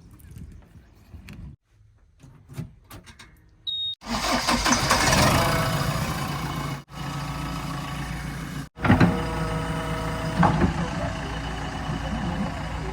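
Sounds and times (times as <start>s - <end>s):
diesel engine starting and running: 4.0s - 12.9s.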